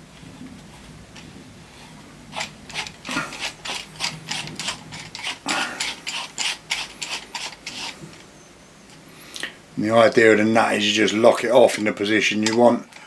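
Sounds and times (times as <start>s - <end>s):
metal thread screwing clicks: 2.3s - 8.3s.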